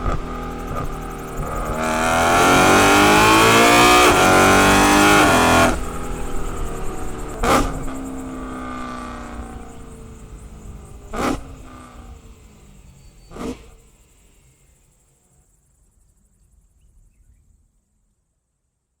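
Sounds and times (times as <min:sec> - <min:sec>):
exhaust bangs: 0:00.0 - 0:14.1
car engine note: 0:00.0 - 0:14.2.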